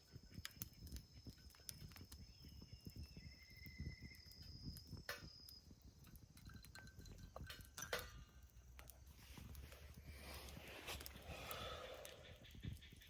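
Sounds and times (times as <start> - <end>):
insects chirring: 0.0 - 7.4.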